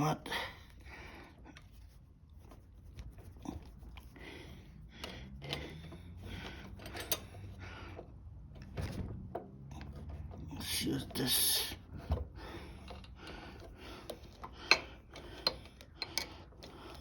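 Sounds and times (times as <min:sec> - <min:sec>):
tools clicking and knocking: 0:05.0 - 0:11.2, 0:11.8 - 0:17.0.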